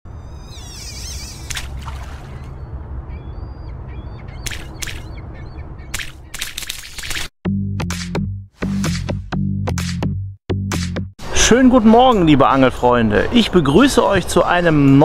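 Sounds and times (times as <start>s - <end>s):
birds calling: 0.1s - 7.1s.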